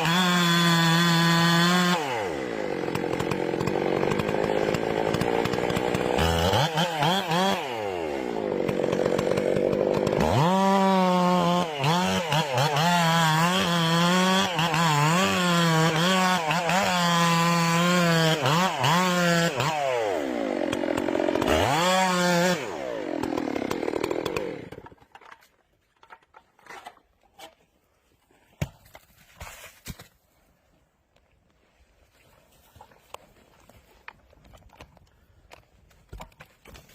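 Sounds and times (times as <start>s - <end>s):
chainsaw cutting wood: 0.0s - 27.7s, 32.8s - 36.9s.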